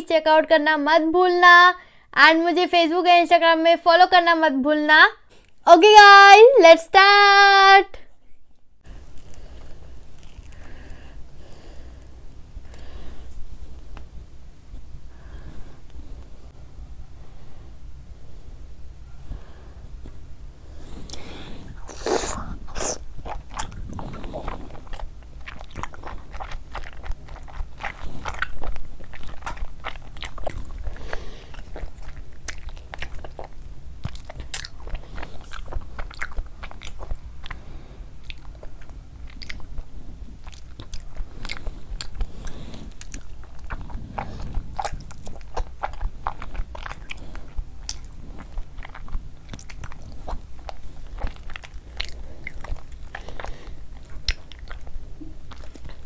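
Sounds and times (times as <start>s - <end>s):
close chewing and biting: 8.9s - 14.1s, 21.0s - 56.0s.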